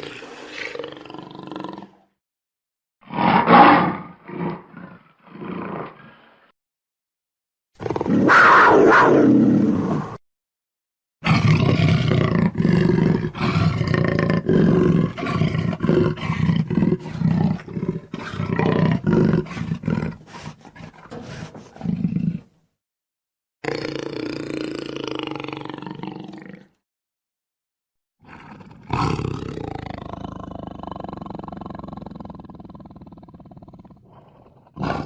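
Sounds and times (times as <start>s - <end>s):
jaguar roaring and growling: 3.0s - 6.5s, 7.8s - 10.2s, 11.2s - 22.5s, 28.2s - 35.0s.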